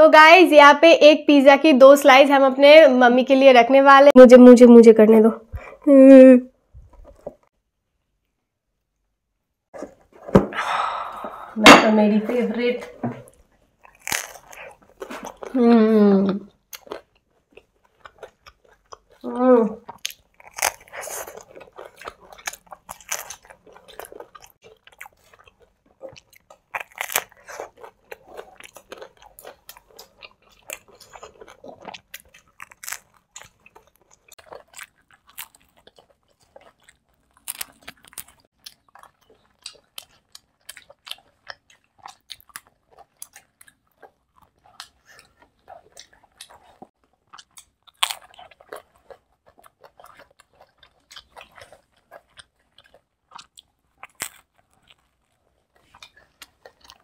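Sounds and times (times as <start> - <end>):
people biting and chewing pizza: 9.7 - 11.5, 13.2 - 57.0.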